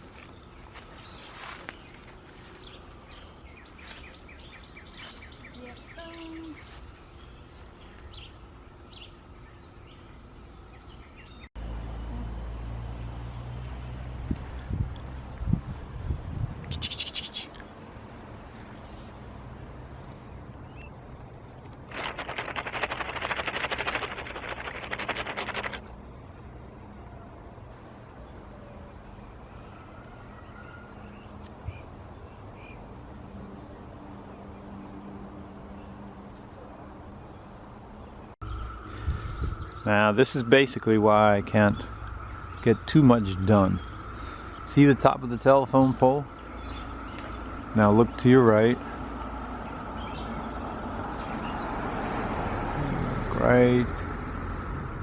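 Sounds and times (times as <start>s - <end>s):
bird chirps: 0.0s - 12.2s, 38.4s - 51.8s
steady low hum: 0.0s - 55.0s.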